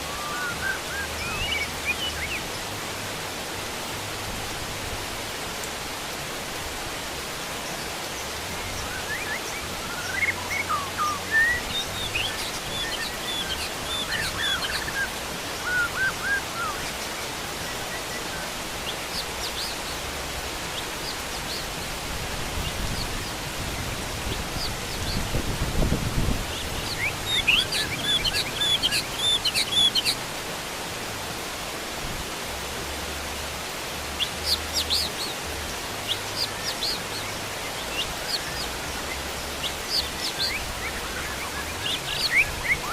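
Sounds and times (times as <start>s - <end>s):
heavy rain: 0.0s - 42.9s
bird chirping: 8.6s - 20.0s, 26.5s - 30.2s.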